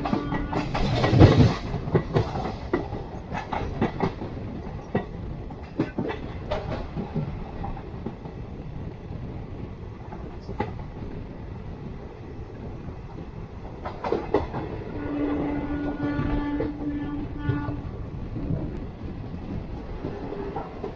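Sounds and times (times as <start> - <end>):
train horn: 0.0 - 1.5, 14.8 - 18.0
wheels clacking over rail joints: 0.0 - 8.4, 13.1 - 17.7
train rumbling on rails: 0.0 - 20.9.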